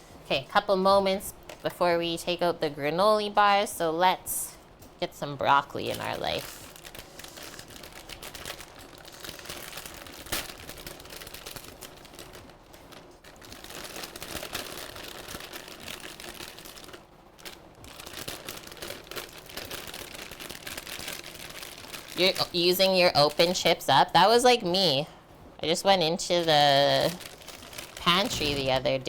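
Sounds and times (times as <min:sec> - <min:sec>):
rustling: 0:26.4 - 0:29.0.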